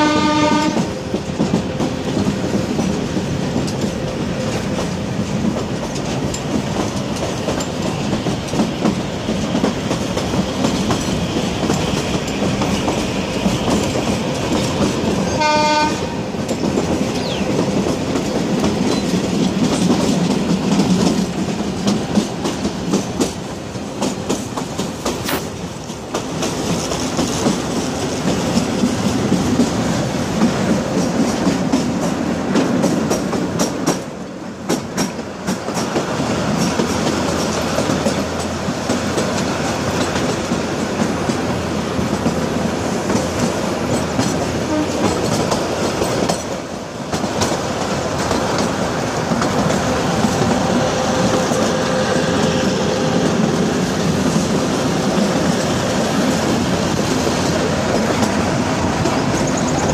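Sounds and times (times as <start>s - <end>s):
train horn blast: 0.0s - 1.0s, 15.3s - 16.4s, 44.6s - 45.2s, 49.9s - 53.6s
train wheels rumbling on rails: 0.0s - 59.9s.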